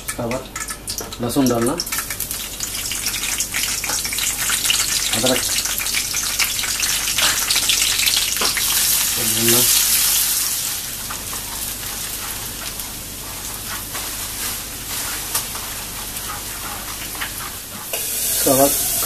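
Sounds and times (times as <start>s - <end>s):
ginger and garlic sizzling in oil: 0.0s - 19.0s.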